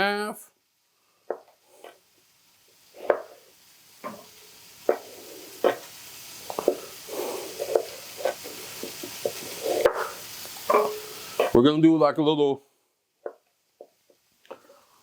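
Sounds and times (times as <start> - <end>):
ham sizzling in a pan: 0.0 - 15.0.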